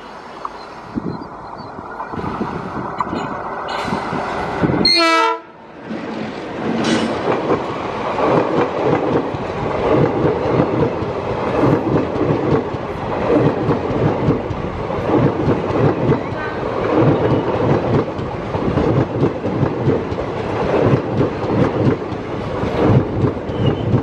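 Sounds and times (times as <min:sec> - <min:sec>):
diesel locomotive running past: 0:00.0 - 0:24.0
train horn blast: 0:04.8 - 0:05.7, 0:16.4 - 0:16.8
wheels clattering over rail joints: 0:05.8 - 0:24.0.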